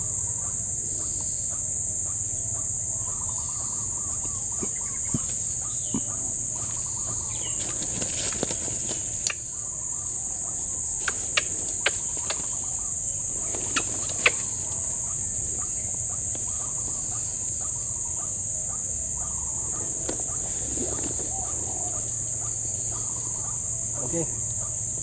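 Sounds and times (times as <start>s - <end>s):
high-pitched insect chorus: 0.0s - 25.0s
waterhen calls: 3.0s - 24.8s
sharp clicks: 11.0s - 12.6s.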